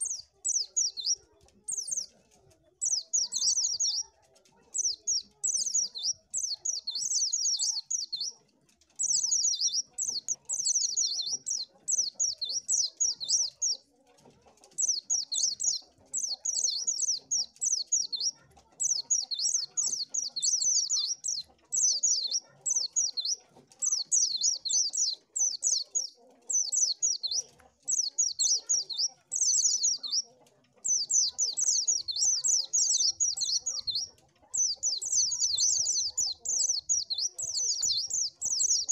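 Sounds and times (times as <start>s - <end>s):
bird twittering song: 0.0s - 2.2s, 2.8s - 4.1s, 4.7s - 13.9s, 14.7s - 38.9s.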